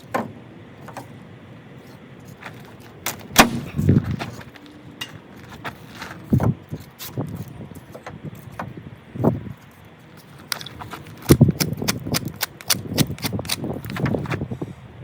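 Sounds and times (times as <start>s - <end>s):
wooden pieces knocking and thudding: 0.0s - 1.1s.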